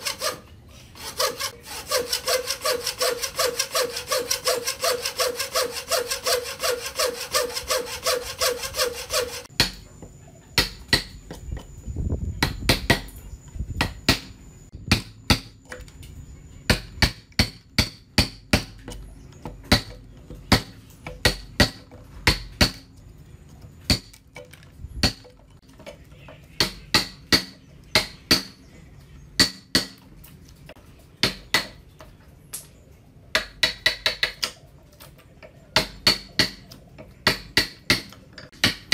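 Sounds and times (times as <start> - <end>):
hand saw cutting wood: 0.0 - 9.5.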